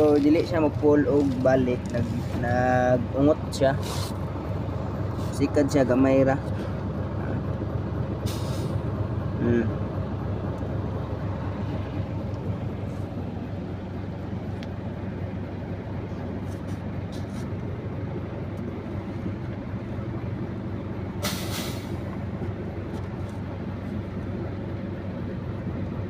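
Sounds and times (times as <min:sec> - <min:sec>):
diesel truck engine idling: 0:00.0 - 0:26.0
air brake hiss: 0:03.8 - 0:04.2, 0:08.2 - 0:08.8, 0:21.2 - 0:22.0.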